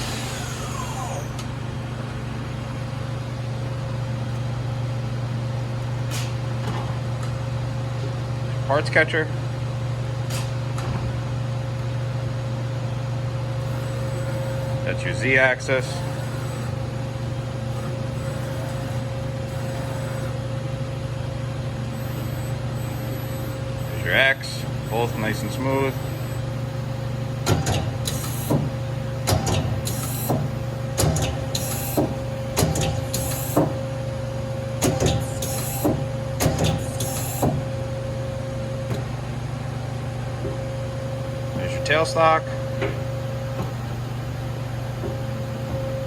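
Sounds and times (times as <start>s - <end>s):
machine tool humming and whining: 0.0s - 3.4s, 11.4s - 46.0s
mid-pitched machine tone: 13.6s - 20.7s, 21.8s - 26.7s.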